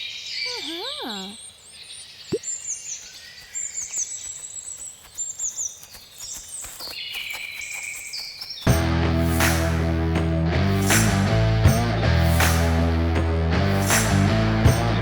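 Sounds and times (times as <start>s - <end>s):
birds chirping and trilling: 0.0s - 8.7s
faint outdoor background: 0.0s - 15.0s
loud rock music: 8.7s - 15.0s.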